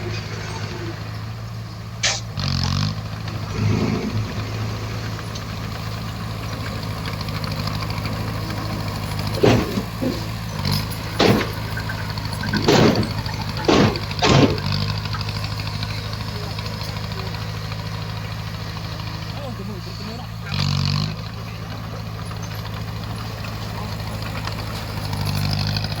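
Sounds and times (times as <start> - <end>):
bulldozer diesel engine running: 0.0 - 26.0
loud noisy bursts: 3.3 - 7.0, 11.0 - 16.0.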